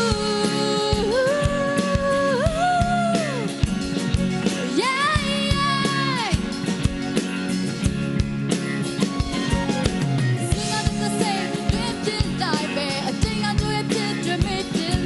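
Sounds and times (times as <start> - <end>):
live pop band playing: 0.0 - 15.0
steady drum beat: 0.0 - 15.0.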